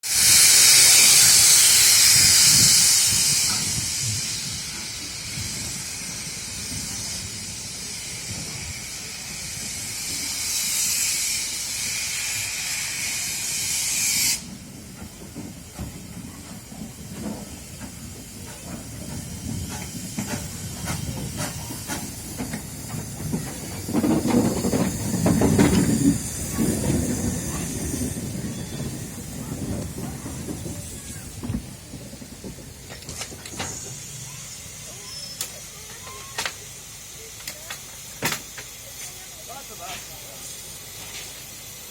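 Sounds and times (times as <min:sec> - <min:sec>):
steam locomotive hissing: 0:00.0 - 0:41.9
low rumbling: 0:14.6 - 0:34.9.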